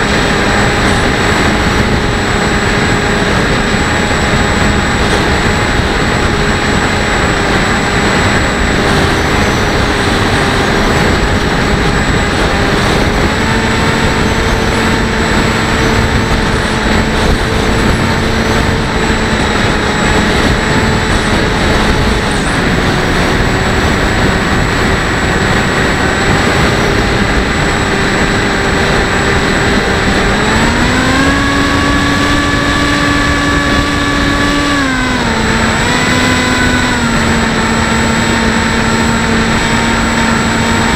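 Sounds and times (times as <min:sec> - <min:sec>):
electric motor and propeller: 0:00.0 - 0:40.9
wind noise on microphone: 0:00.0 - 0:40.9.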